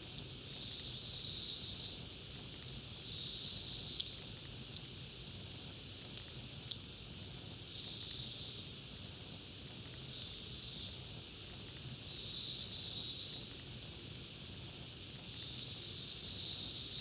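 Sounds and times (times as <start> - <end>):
campfire crackling: 1.9 - 12.2, 13.3 - 16.1.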